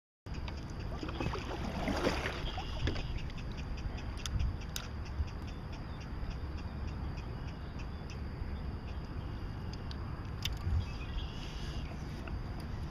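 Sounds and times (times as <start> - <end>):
water lapping around hull: 0.3 - 9.4, 10.5 - 12.9
wind rumble on microphone: 0.3 - 12.9
paddle dipping and splashing: 0.8 - 3.4.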